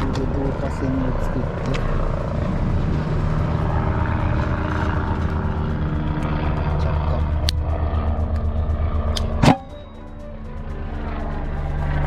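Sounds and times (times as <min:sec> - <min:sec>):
engine humming: 0:00.0 - 0:12.0
sharp tick: 0:07.2 - 0:10.0.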